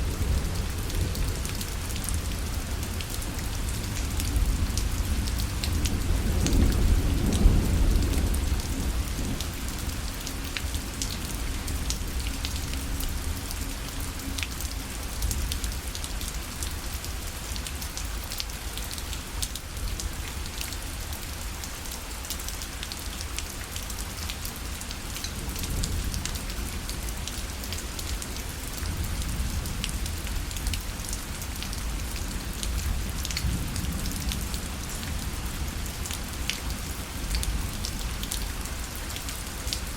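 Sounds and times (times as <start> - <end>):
low rumble of thunder: 0.0 - 13.8, 25.4 - 39.0
rain pattering on fabric: 0.0 - 39.9.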